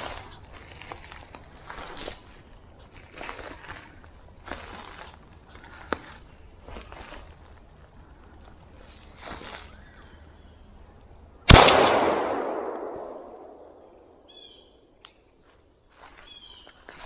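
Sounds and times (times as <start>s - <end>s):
gunshot echoing through woods: 11.5s - 14.4s.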